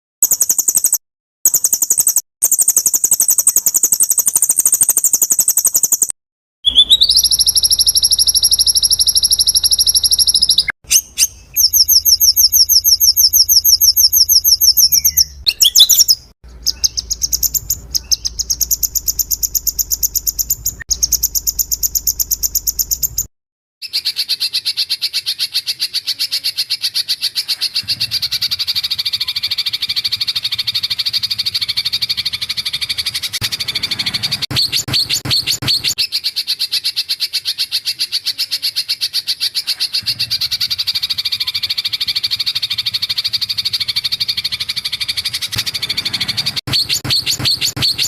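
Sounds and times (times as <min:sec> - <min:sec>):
songbird chattering trill: 0:00.2 - 0:06.1, 0:06.7 - 0:48.0.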